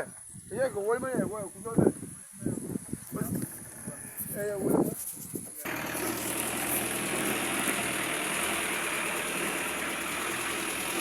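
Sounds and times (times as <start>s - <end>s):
constant hiss: 0.0s - 11.0s
vehicle engine running: 5.6s - 11.0s.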